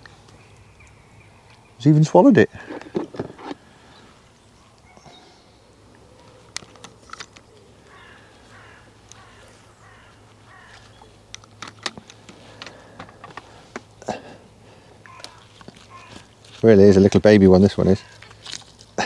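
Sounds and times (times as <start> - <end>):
birds calling faintly: 0.0 - 19.0.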